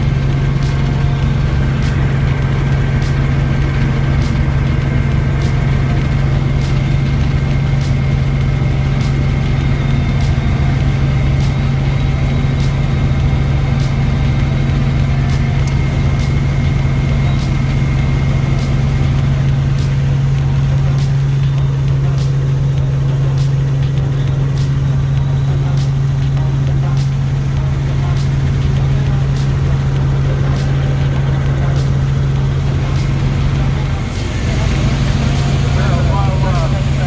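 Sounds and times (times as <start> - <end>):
faint regular ticks: 0.0 - 37.0
helicopter droning: 0.0 - 37.0.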